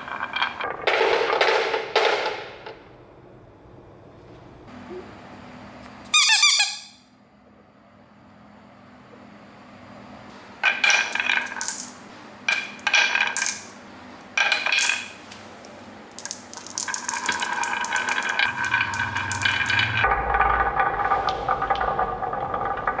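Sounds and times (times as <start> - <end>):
marbles rattling along a track: 0.0 - 2.5, 10.6 - 13.8, 14.4 - 15.2, 16.1 - 23.0.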